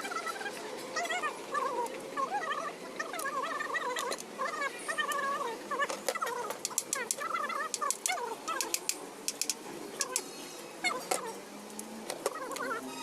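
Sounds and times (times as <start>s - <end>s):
sharp clicks and taps: 5.9s - 10.3s.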